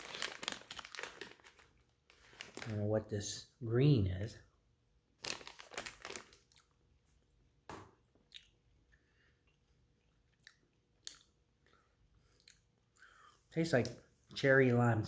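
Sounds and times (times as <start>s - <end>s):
wet mouth sounds: 8.2s - 12.7s
chewing gummy candy: 9.4s - 12.7s.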